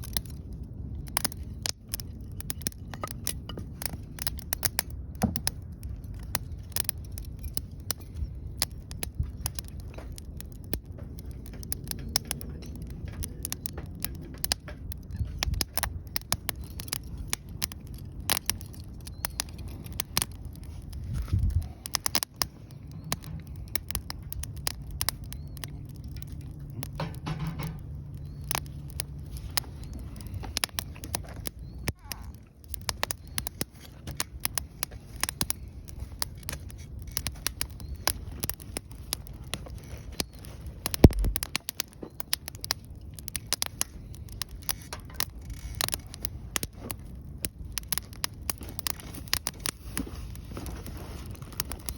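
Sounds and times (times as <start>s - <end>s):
wood fire crackling and popping: 0.0s - 51.9s
low rumble: 33.6s - 41.7s.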